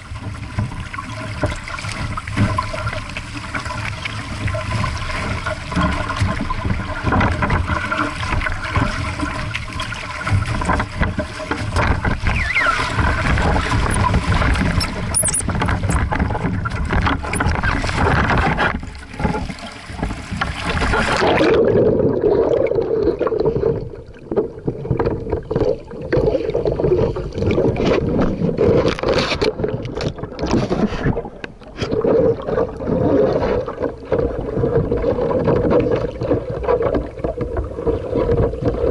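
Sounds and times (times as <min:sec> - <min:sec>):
water rushing and splashing: 0:00.0 - 0:38.9.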